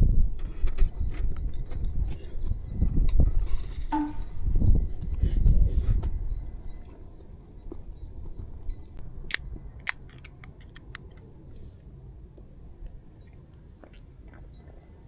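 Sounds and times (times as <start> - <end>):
sharp small clicks: 9.8 - 11.2.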